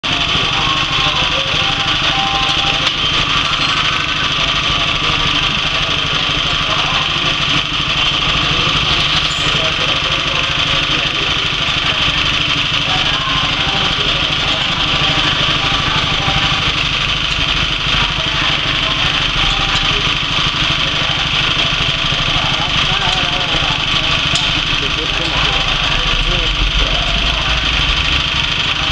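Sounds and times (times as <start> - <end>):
petrol engine running steadily: 0.0 - 28.9.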